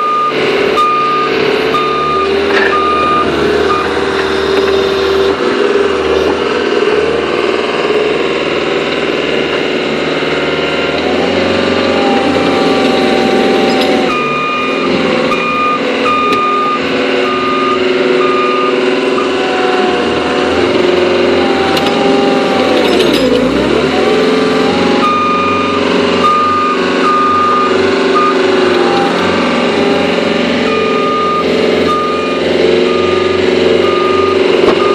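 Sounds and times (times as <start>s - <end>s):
reverse alarm beeping: 0.0s - 4.2s, 11.9s - 19.8s, 24.6s - 34.9s
loader diesel engine running: 0.0s - 34.9s.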